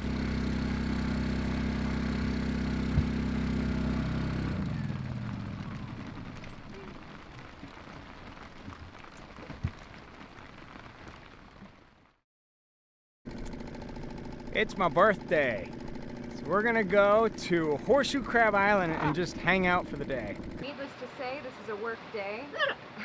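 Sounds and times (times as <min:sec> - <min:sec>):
motor hum winding down: 0:00.0 - 0:07.2, 0:13.3 - 0:20.6.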